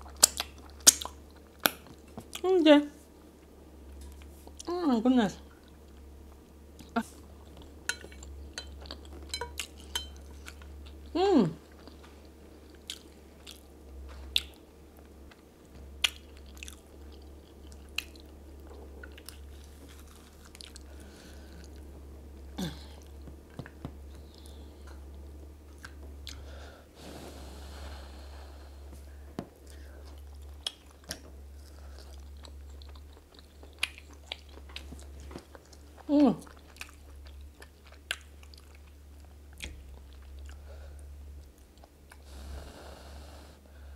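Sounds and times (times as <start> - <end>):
chewing and mouth clicks: 0.0 - 2.4, 11.6 - 21.0, 25.7 - 26.4, 29.6 - 40.6
steady low hum: 0.0 - 43.9
person voicing mm: 11.1 - 11.6.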